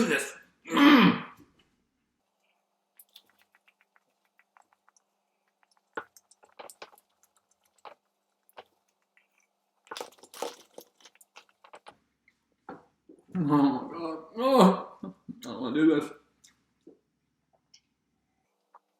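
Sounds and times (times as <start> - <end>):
faint eating clicks and crackles: 2.3 - 12.4.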